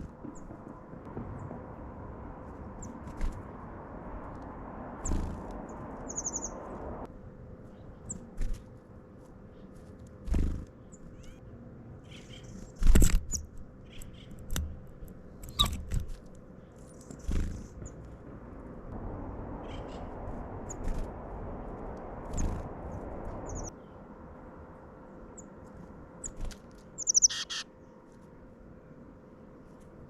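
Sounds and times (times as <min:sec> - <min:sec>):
small birds chirping: 0:05.0 - 0:06.8, 0:07.6 - 0:14.8, 0:15.4 - 0:15.9, 0:16.5 - 0:18.2, 0:22.3 - 0:24.0, 0:26.2 - 0:27.6.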